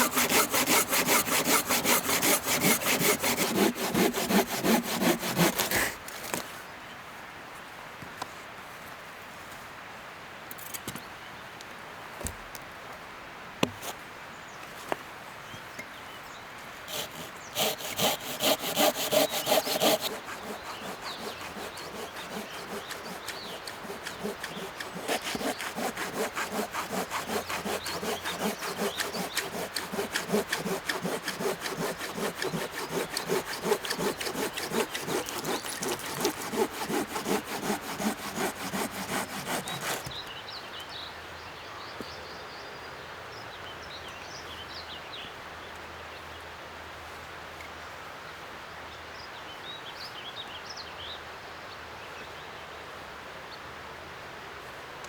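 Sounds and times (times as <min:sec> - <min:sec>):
hand saw cutting log: 0:00.0 - 0:06.5, 0:16.8 - 0:40.4.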